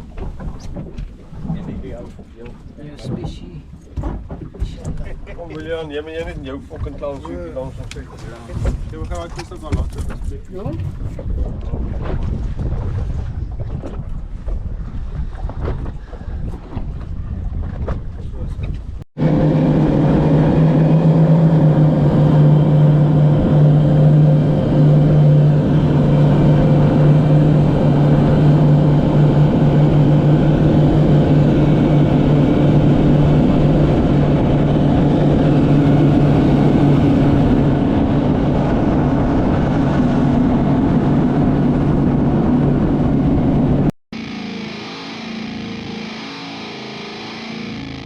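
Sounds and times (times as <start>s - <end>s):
motorboat engine droning: 19.2s - 48.0s.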